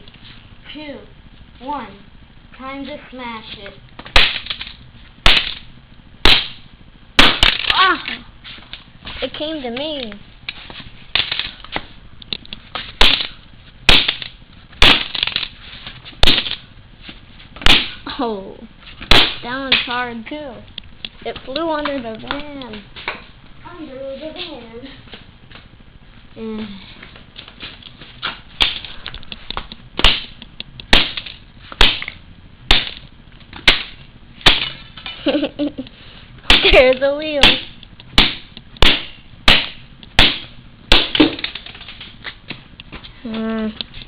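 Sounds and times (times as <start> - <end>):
toy car being smashed: 40.2 - 42.0.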